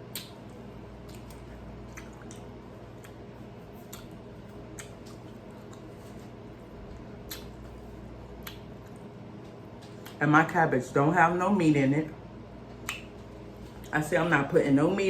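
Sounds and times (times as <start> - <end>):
soft wet chewing: 0.0 - 10.2, 12.6 - 14.0
steady low hum: 0.0 - 15.0.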